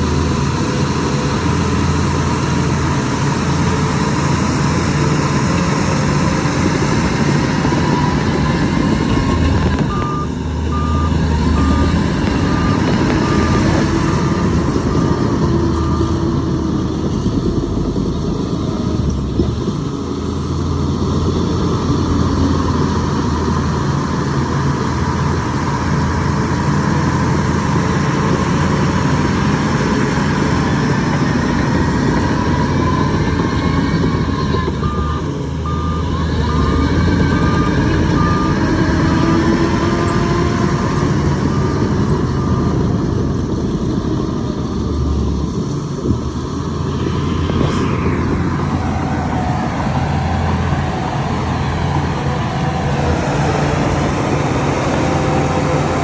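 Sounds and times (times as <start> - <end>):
heavy diesel engine running: 0.0 - 56.0
reversing alarm beeps: 7.6 - 16.2, 32.1 - 39.2.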